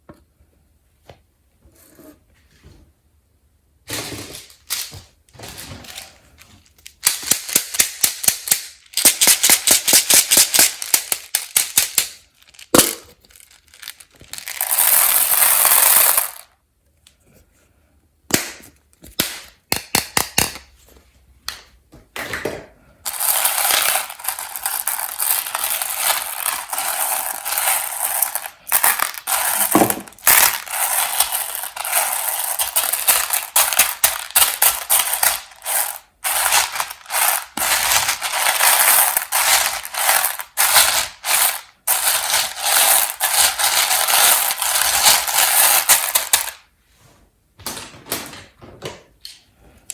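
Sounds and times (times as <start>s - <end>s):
candy wrapper crackling: 4.4s - 16.4s, 23.1s - 46.6s.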